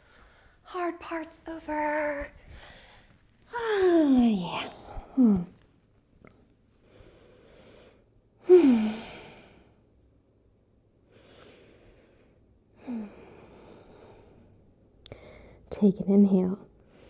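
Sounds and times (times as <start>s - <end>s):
woman breathing and sighing: 2.3s - 5.6s, 6.8s - 9.8s, 11.1s - 15.6s.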